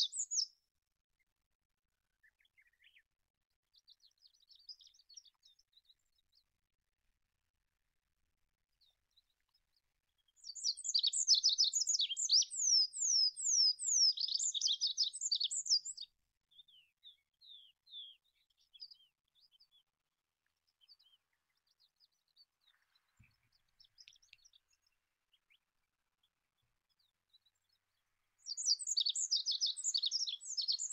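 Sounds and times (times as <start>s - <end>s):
pipit singing trills: 28.5s - 30.9s.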